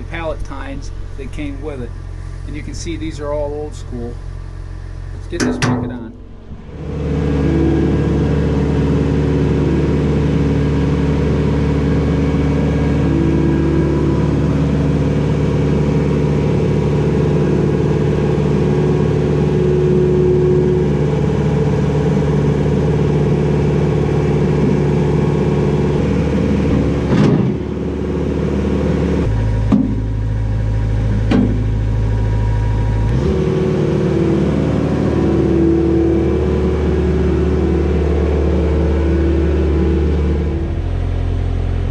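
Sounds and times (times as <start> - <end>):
skid steer engine running: 0.0 - 41.9
metal knocks: 5.2 - 7.0, 29.7 - 30.1.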